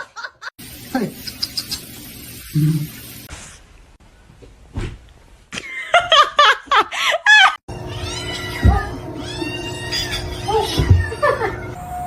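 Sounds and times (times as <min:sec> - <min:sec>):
person laughing hard: 0:10.0 - 0:11.7.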